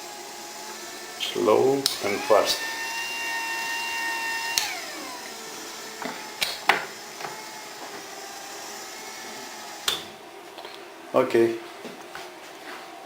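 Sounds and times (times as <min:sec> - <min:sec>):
motor whining: 0:00.0 - 0:11.0
sharp clicks: 0:04.5 - 0:04.8, 0:06.4 - 0:06.8.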